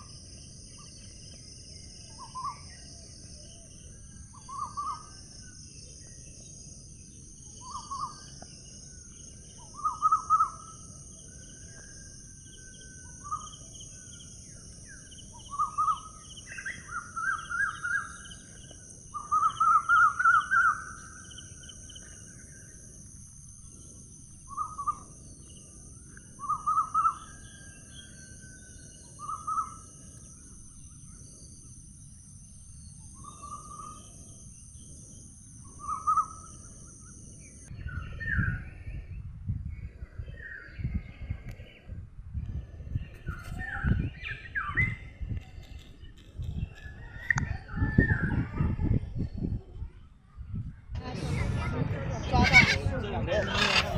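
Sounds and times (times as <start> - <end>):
steady high-pitched hiss: 0.0 - 47.8
bird harsh pulsed calls: 52.1 - 53.9.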